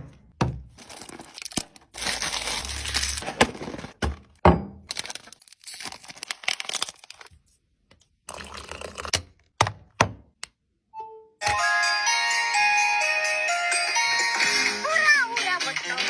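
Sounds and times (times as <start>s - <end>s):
snack packets rustling and crinkling: 0.7s - 4.3s, 4.9s - 7.6s.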